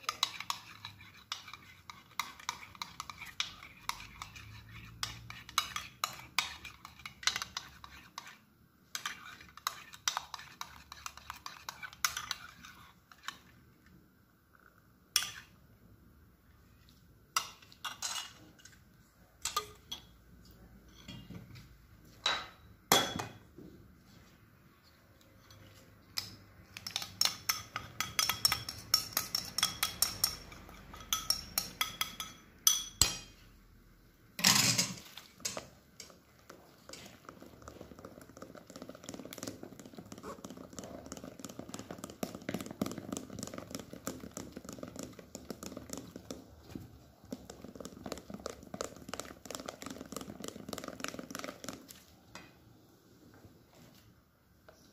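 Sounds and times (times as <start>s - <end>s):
metal utensils clinking on dishes: 34.4s - 35.6s.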